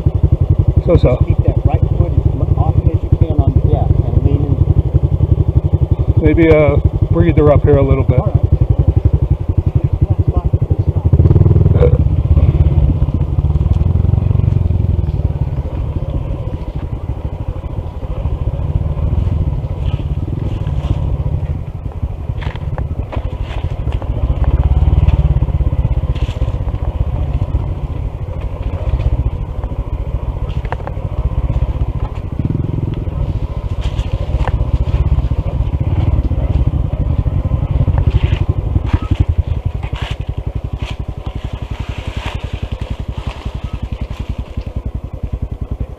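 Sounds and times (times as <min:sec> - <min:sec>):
motorcycle engine running: 0:00.0 - 0:45.9
gravel crunching under tyres: 0:12.4 - 0:45.9.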